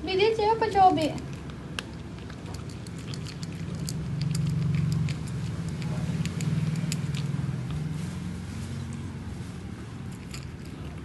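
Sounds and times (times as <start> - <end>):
low steady hum: 0.0 - 11.0
cat eating clicks: 1.0 - 7.8.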